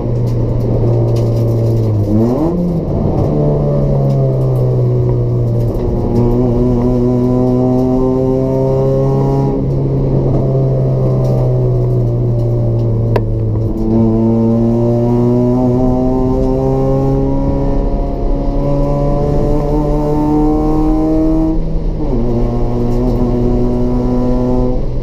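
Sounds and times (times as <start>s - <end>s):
car engine accelerating: 0.0s - 25.0s
gear changes: 0.0s - 25.0s.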